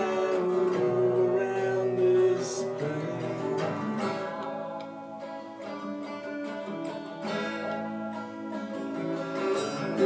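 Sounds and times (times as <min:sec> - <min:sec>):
person singing: 0:00.0 - 0:05.1
acoustic guitar strumming: 0:00.0 - 0:10.0.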